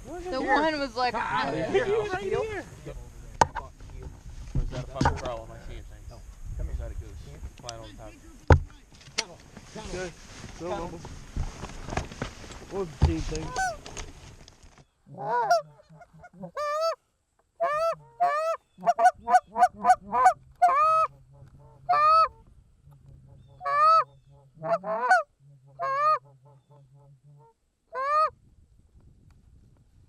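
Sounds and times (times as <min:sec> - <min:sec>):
goose call clucks: 0:13.4 - 0:13.8, 0:15.1 - 0:17.0, 0:17.6 - 0:28.3
goose call honks: 0:13.5 - 0:13.8, 0:15.1 - 0:17.0, 0:17.6 - 0:28.3.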